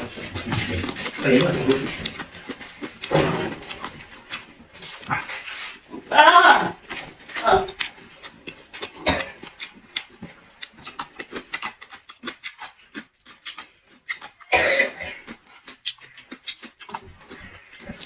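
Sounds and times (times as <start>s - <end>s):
wet chewing and lip smacks: 0.0s - 6.1s, 6.7s - 18.0s.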